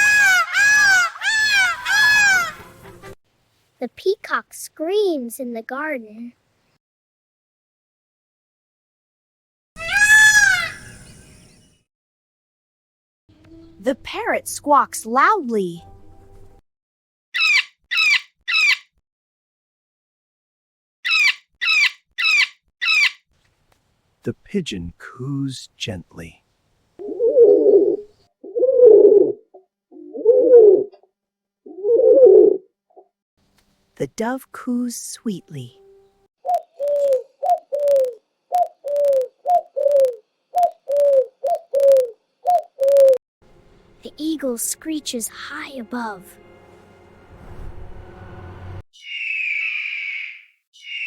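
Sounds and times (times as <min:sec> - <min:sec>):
parrot squawking: 0:00.0 - 0:02.7, 0:09.8 - 0:11.1, 0:17.4 - 0:18.9, 0:21.0 - 0:23.2, 0:49.0 - 0:51.0
dove cooing: 0:27.0 - 0:30.9, 0:31.7 - 0:32.7, 0:36.4 - 0:43.2.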